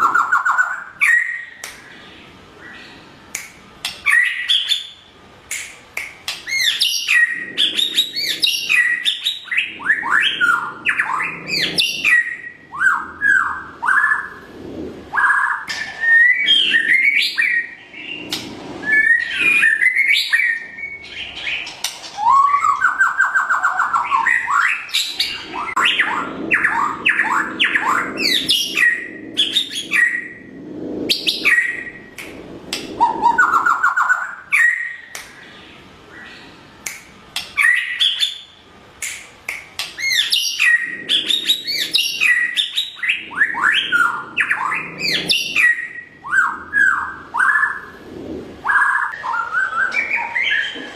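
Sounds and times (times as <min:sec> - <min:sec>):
bird singing whistled notes: 0:06.5 - 0:14.4, 0:15.2 - 0:30.4, 0:31.1 - 0:32.2, 0:40.0 - 0:47.9, 0:48.7 - 0:50.8.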